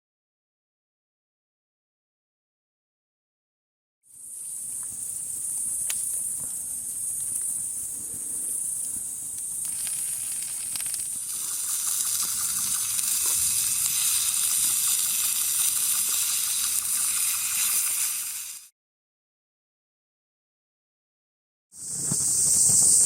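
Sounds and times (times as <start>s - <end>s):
dense sizzling insect call: 4.0s - 18.7s, 21.8s - 23.0s
cicadas buzzing: 4.1s - 18.7s, 21.8s - 23.0s.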